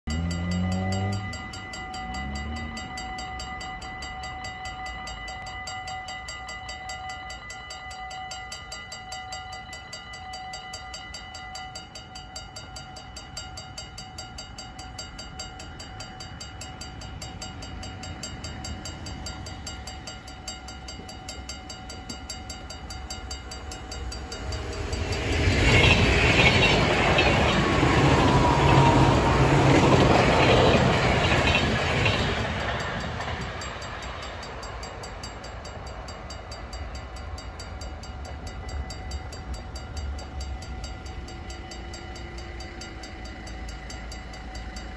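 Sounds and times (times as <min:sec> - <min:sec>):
level crossing bell ringing: 0:00.1 - 0:44.9
train wheels rushing on rail: 0:11.9 - 0:44.9.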